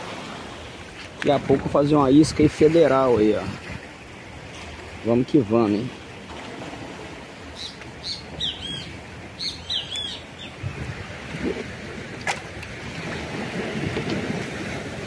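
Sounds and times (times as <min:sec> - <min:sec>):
surf rushing: 0:00.0 - 0:09.6, 0:10.2 - 0:15.0
wind: 0:00.0 - 0:15.0
small bird chirping: 0:07.6 - 0:10.6.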